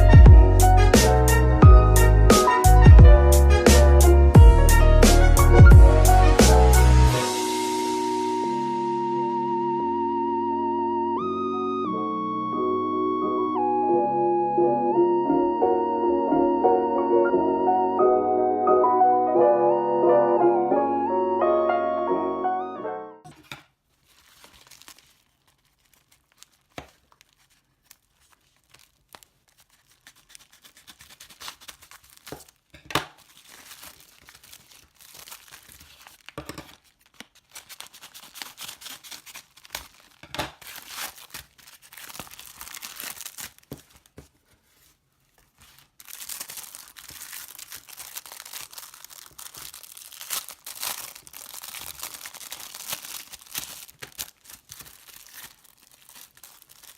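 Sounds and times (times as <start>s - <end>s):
packaging tearing and crinkling: 23.3s - 56.9s.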